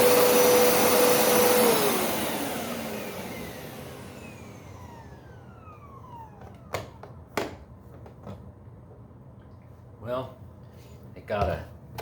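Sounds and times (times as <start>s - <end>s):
motor winding down whine: 0.0s - 7.0s.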